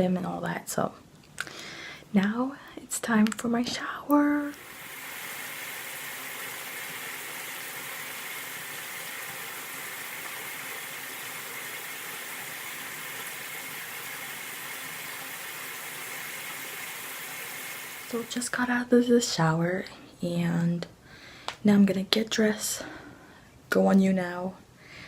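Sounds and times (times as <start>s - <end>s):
shower water spraying: 4.4s - 18.6s.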